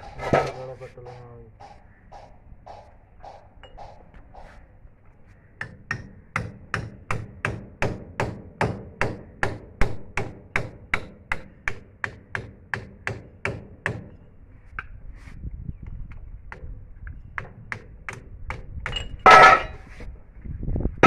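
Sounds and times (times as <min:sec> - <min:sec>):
hammer blows: 0:00.0 - 0:04.7.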